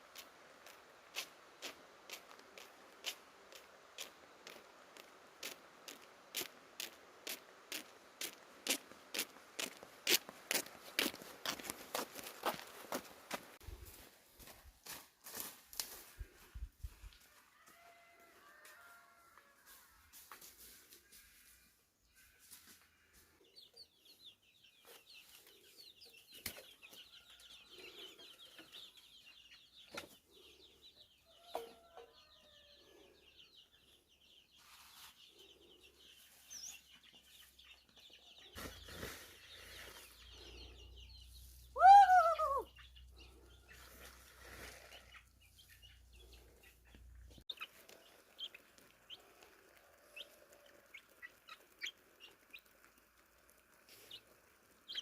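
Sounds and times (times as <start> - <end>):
chickens clucking: 42.4 - 55.0.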